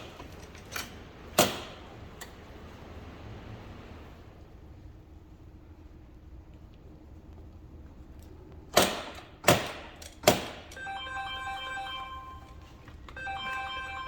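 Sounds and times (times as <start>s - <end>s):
electronic tone melody: 10.8s - 12.6s, 13.2s - 14.0s.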